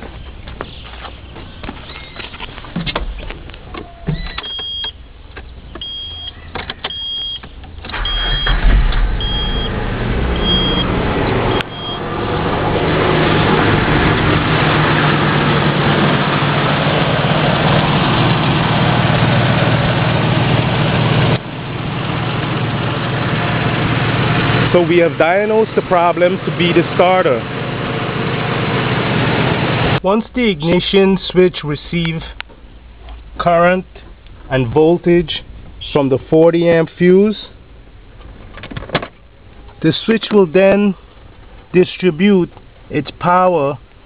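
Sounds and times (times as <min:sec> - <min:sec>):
car engine idling: 0:00.0 - 0:30.6
dashboard warning chime beeping: 0:04.2 - 0:05.0, 0:05.8 - 0:12.1
engine starter cranking: 0:06.7 - 0:10.9.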